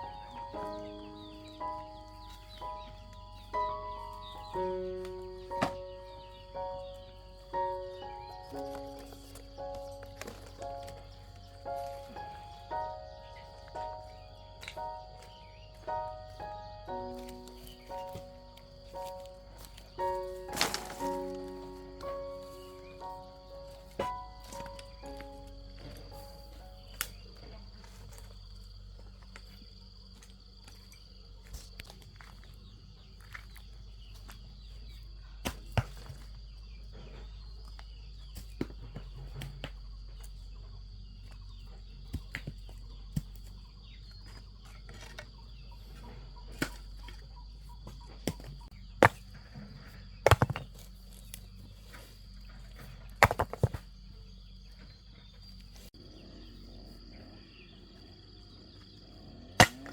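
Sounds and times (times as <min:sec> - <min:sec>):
high insect drone: 0:00.0 - 0:35.4.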